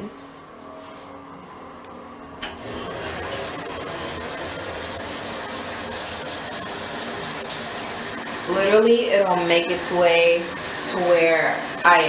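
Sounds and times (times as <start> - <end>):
shower water spraying on floor: 2.6 - 12.0.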